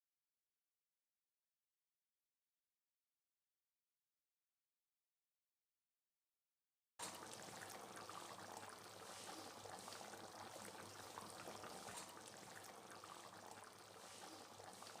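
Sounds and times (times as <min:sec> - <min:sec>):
simmering liquid bubbling: 0:07.0 - 0:15.0.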